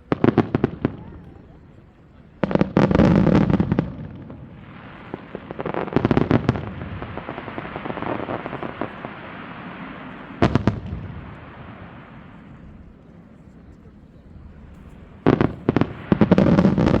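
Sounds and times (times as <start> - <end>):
fireworks bangs: 0.0 - 13.4, 14.5 - 17.0
fireworks crackling: 0.0 - 17.0.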